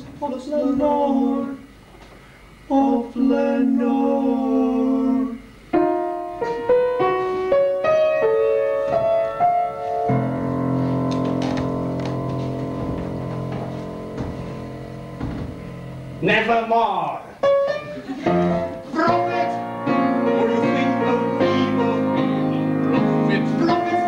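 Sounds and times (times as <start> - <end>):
piano playing chords: 4.4 - 16.8, 17.4 - 24.0.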